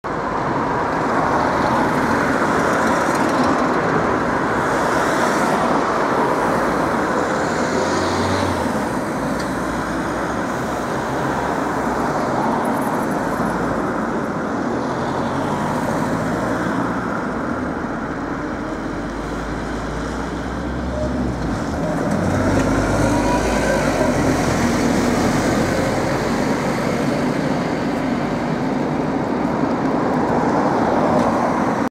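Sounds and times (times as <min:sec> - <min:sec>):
road traffic noise: 0:00.0 - 0:31.9
bus diesel engine running: 0:17.8 - 0:29.7.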